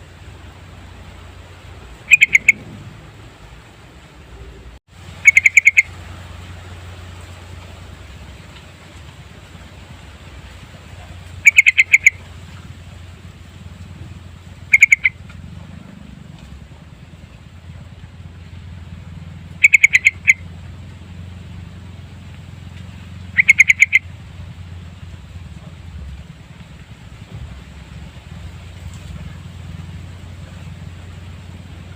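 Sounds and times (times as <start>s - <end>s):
bulbul singing bubbling notes: 2.0s - 3.0s, 5.2s - 5.9s, 14.6s - 15.2s, 23.3s - 24.1s.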